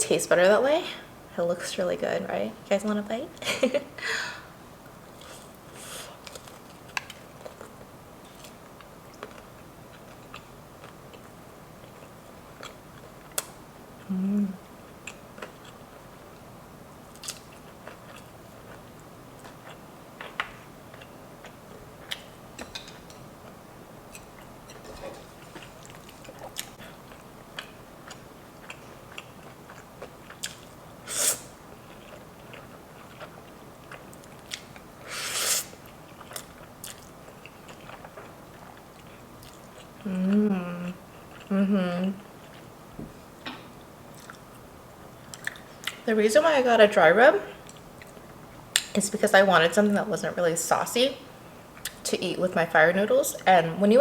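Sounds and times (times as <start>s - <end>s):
close-miked chewing: 14.9s - 16.5s, 17.1s - 30.8s, 31.8s - 34.9s, 35.8s - 42.7s, 44.1s - 44.6s, 45.2s - 46.0s.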